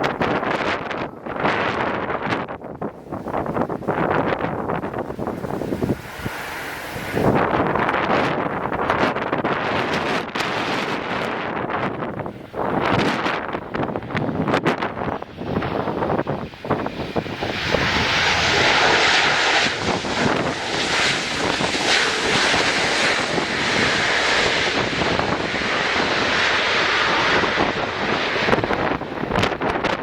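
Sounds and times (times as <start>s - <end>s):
wind buffeting microphone: 0.0s - 30.0s
jet engines rushing: 3.0s - 30.0s.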